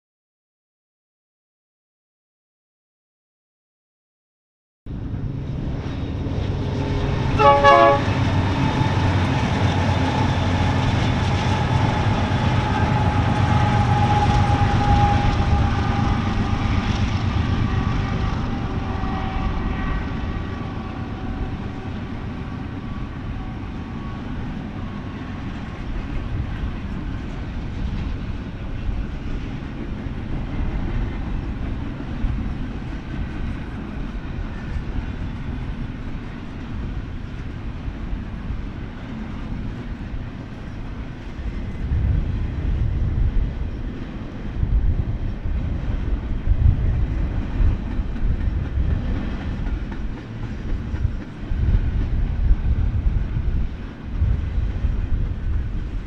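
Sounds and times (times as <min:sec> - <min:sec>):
train cars on rails: 0:04.9 - 0:56.0
train horn: 0:06.6 - 0:27.8.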